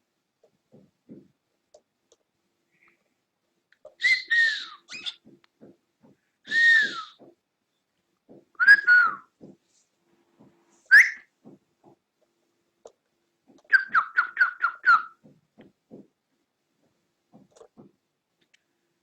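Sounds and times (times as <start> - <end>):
cockatiel whistled calls: 4.0 - 5.2, 6.5 - 7.2, 8.6 - 9.3, 10.9 - 11.3, 13.7 - 15.2.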